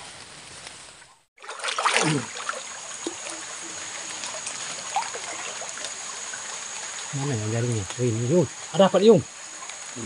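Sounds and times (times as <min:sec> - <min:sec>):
small splashes: 0:01.4 - 0:08.0
water trickling: 0:01.4 - 0:10.0.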